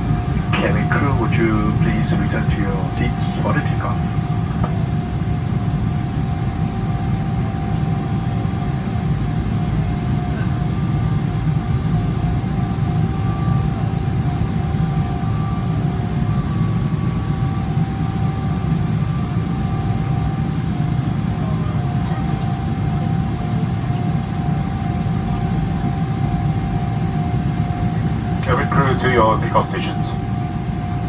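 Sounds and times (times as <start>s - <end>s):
jet engines heard inside cabin: 0.0s - 31.0s.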